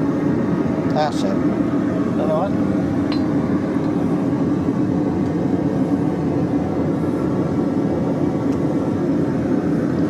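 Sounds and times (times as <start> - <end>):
gas burner flame roaring: 0.0 - 10.0.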